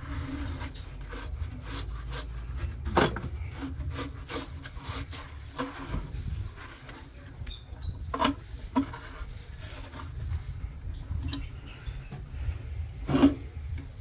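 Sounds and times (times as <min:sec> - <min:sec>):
low steady rumble: 0:08.5 - 0:14.0.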